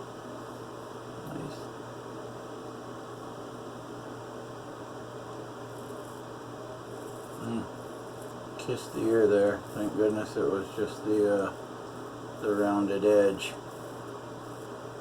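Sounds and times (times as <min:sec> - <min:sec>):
constant hiss: 0:00.0 - 0:15.0
electrical hum: 0:00.0 - 0:15.0.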